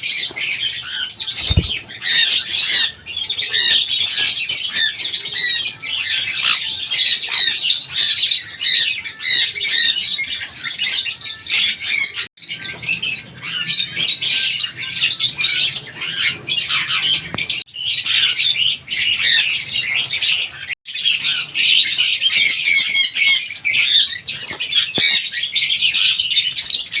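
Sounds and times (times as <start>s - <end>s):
parrot squawking and chirping: 0.0s - 27.0s.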